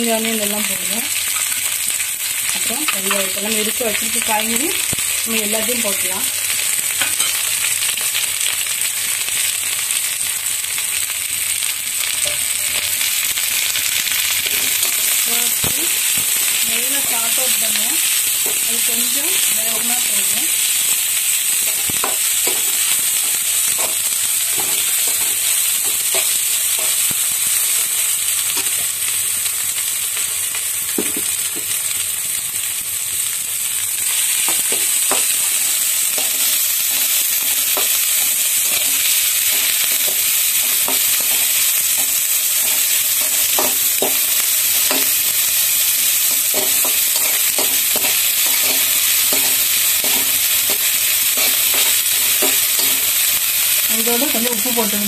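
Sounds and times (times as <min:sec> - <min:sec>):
vegetables sizzling in hot oil: 0:00.0 - 0:55.0
spatula scraping and knocking pan: 0:21.6 - 0:27.0, 0:37.6 - 0:45.2, 0:46.3 - 0:53.1.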